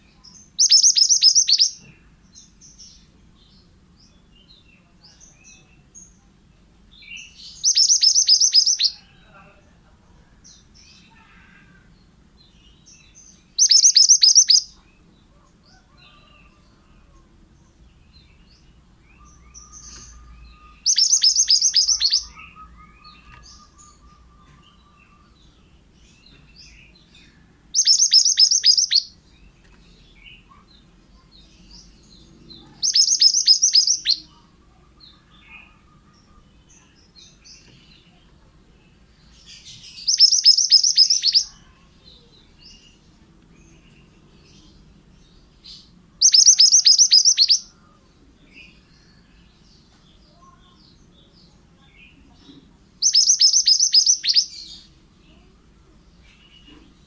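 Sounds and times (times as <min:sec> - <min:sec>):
faint chirps: 0:00.0 - 0:57.0
bird singing sharp high notes: 0:13.6 - 0:14.7, 0:19.4 - 0:24.3, 0:32.8 - 0:34.2, 0:46.2 - 0:47.7, 0:53.0 - 0:54.5.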